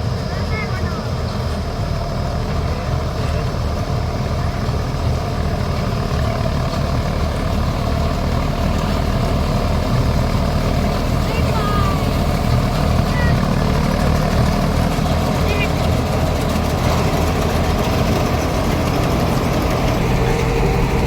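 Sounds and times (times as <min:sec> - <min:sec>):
combine harvester engine droning: 0:00.0 - 0:21.0.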